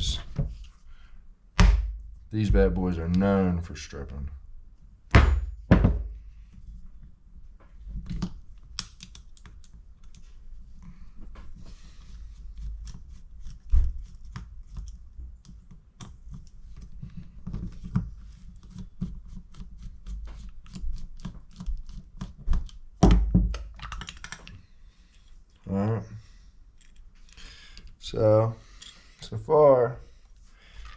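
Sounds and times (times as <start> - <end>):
heavier knocks: 1.6 - 2.8, 5.1 - 6.2.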